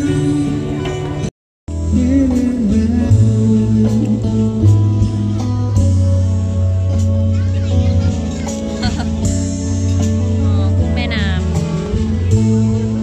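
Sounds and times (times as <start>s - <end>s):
person singing: 0.0s - 6.0s
guitar and bass music: 0.0s - 13.0s.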